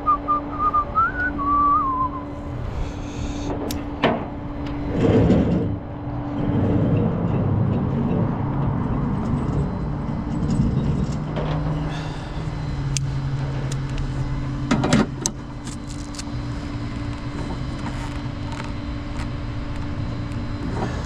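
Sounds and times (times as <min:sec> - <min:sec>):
vehicle engine running: 0:00.0 - 0:21.0
loud clatter: 0:03.5 - 0:11.8.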